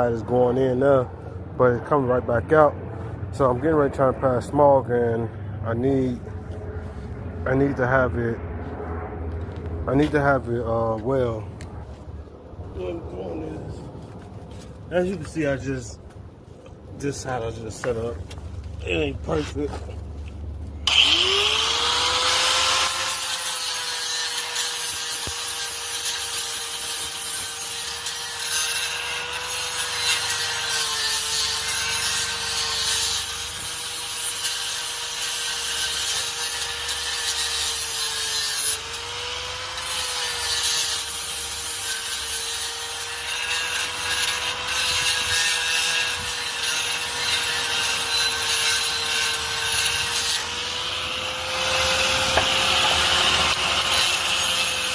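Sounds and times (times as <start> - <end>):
angle grinder on steel pipe: 20.9 - 54.9.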